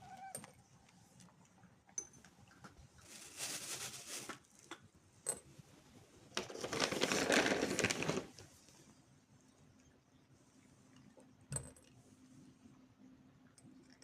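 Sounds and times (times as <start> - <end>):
dry rustling and scratching: 3.0 - 4.4, 6.4 - 8.5.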